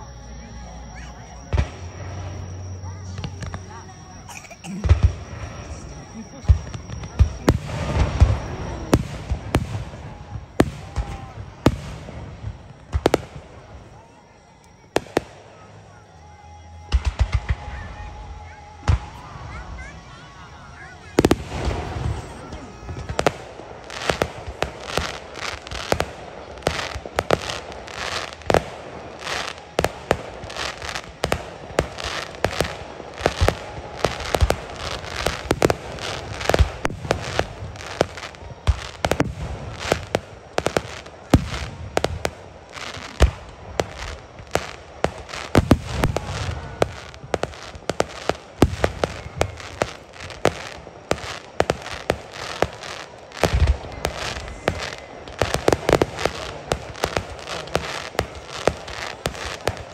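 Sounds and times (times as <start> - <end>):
firework shells bursting: 21.2 - 59.9.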